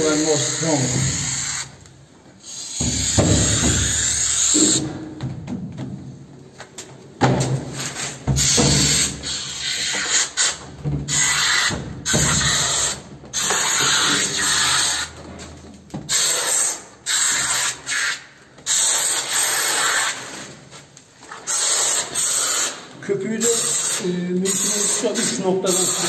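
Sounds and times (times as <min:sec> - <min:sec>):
spray foam can hissing: 0:00.0 - 0:01.8, 0:02.4 - 0:04.9, 0:07.9 - 0:15.1, 0:16.1 - 0:20.5, 0:21.4 - 0:26.0.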